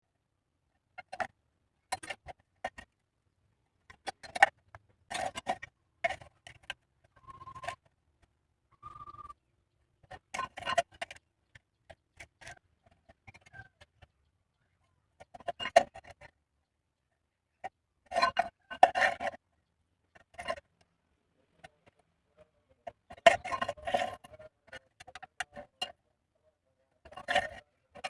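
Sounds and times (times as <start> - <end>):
metal pipes and tools clicking: 10.0 - 11.2, 22.9 - 26.0, 27.0 - 28.0.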